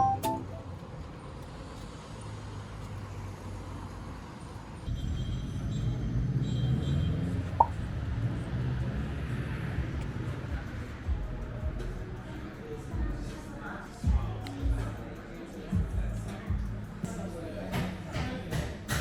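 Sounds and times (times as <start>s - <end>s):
road traffic rumbling: 0.0s - 14.0s.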